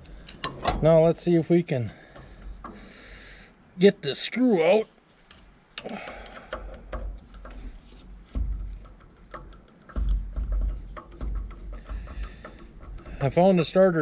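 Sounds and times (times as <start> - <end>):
low handling bumps: 0.0 - 4.0, 5.2 - 14.0
hand tools clicking on metal: 5.3 - 14.0.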